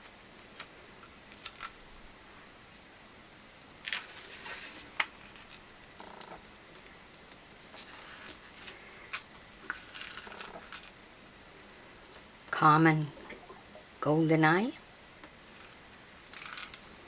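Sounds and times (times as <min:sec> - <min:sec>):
soft rustles: 0:03.9 - 0:06.9, 0:07.7 - 0:10.9.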